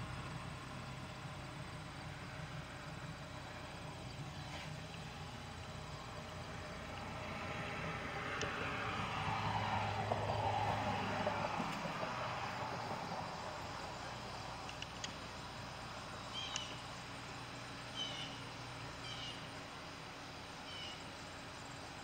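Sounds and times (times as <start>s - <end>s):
low vehicle hum: 0.0s - 22.0s
bird calling: 16.1s - 17.2s, 17.9s - 19.6s, 20.6s - 21.2s.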